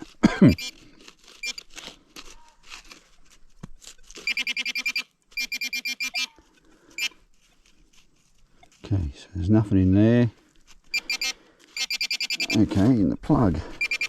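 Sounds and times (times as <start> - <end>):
rapid electronic beeps: 4.2 - 6.3, 11.0 - 12.6, 13.8 - 14.0
faint scraping of soil: 6.3 - 11.7, 12.5 - 13.8.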